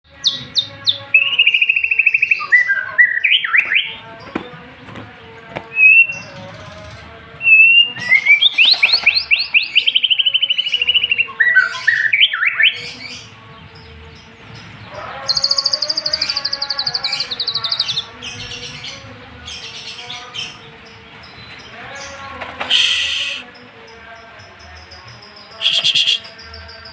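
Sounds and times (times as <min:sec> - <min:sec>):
songbird singing with trills: 0:00.0 - 0:26.9.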